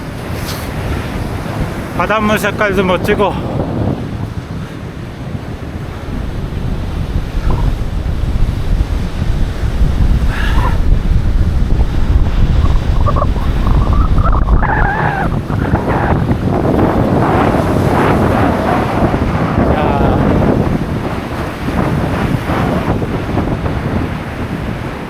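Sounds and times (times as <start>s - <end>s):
breaking surf: 0.0s - 25.0s
wind buffeting microphone: 0.0s - 25.0s.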